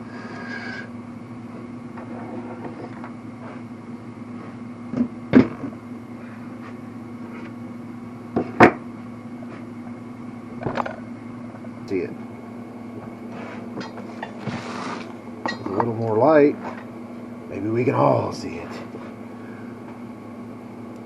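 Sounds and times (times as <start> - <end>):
steady low hum: 0.0 - 21.0
sharp knocks on engine parts: 4.9 - 5.7, 8.4 - 8.8.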